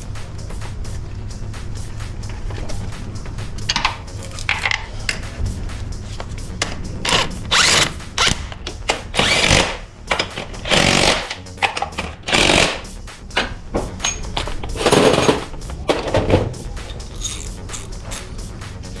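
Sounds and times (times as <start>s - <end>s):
sharp metallic clicks: 3.6s - 5.4s, 6.5s - 18.4s
power tool running in bursts: 9.2s - 9.8s, 10.7s - 11.4s, 12.3s - 12.8s.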